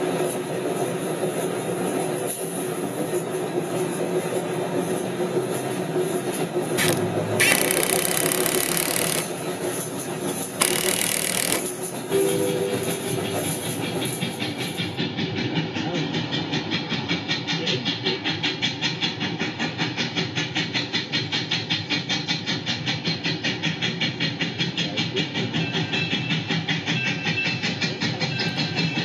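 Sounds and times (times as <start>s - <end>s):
rhythmic mechanical clattering: 3.4s - 18.0s.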